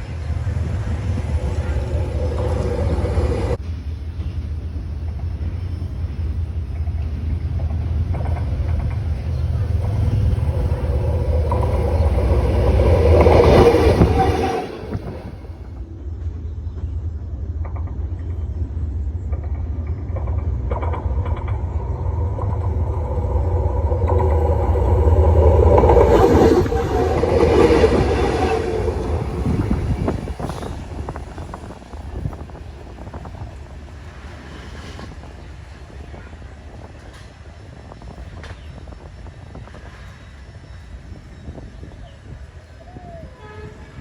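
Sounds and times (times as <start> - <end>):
wheels clicking over rails: 0.0 - 3.6, 6.8 - 15.8, 16.8 - 35.3
diesel locomotive engine rumble: 0.0 - 44.0.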